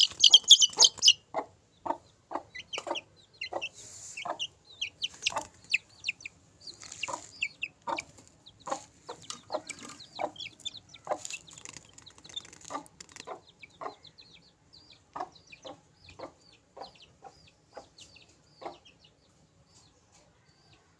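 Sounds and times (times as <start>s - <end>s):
chickens clucking: 0.0s - 20.9s.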